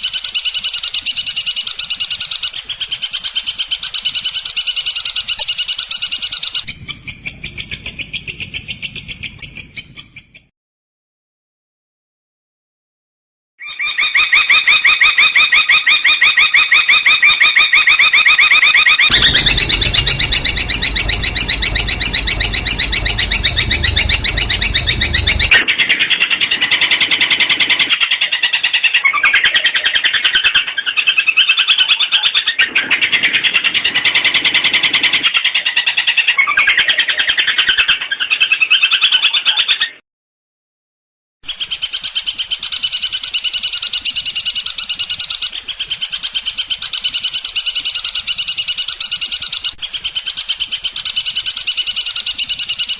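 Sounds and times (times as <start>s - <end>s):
bird singing harsh chattering trill: 19.1s - 25.6s.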